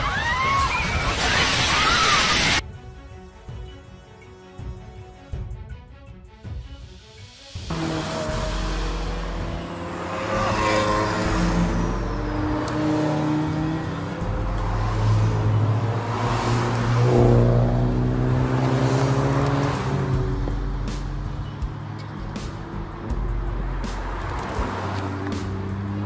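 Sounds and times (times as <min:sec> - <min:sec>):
music playing: 0:02.6 - 0:26.0
car engines revving past: 0:07.7 - 0:26.0.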